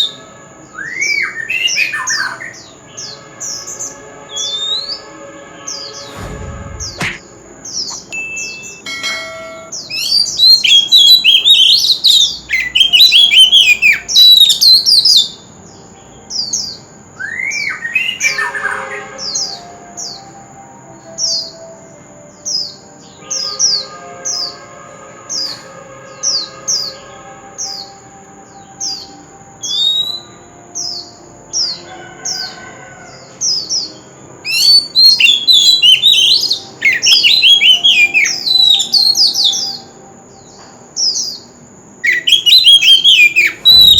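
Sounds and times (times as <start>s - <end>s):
magpie-robin warbling song: 0.8s - 43.9s
short high falling bird notes: 3.2s - 11.7s.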